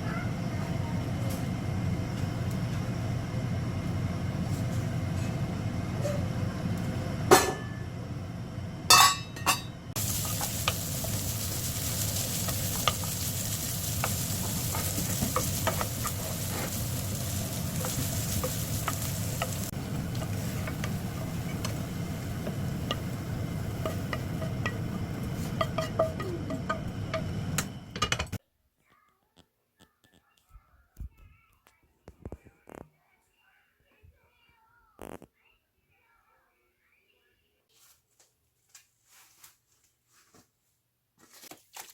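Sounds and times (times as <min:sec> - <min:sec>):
steady low hum: 0:00.0 - 0:28.4
utensil scraping a pan: 0:10.0 - 0:27.6
food sizzling in a pan: 0:10.0 - 0:28.0.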